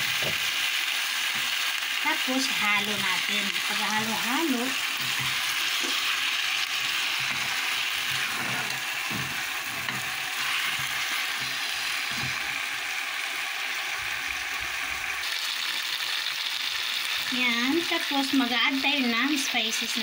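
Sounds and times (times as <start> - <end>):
chicken sizzling in hot oil: 0.0 - 20.0
spatula scraping and knocking: 5.0 - 6.2, 7.1 - 12.5.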